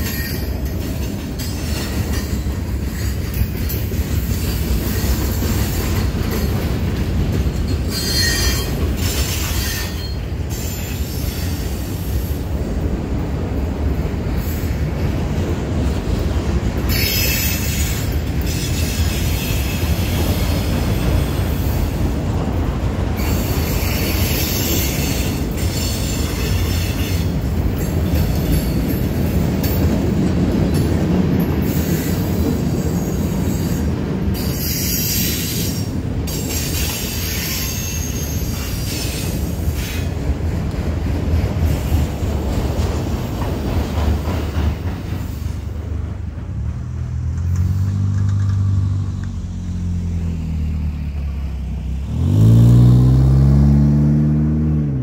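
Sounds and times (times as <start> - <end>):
train wheels rumbling on rails: 0.0 - 53.9
high-pitched wheel squeal: 7.9 - 11.9, 16.9 - 21.3, 34.4 - 40.1.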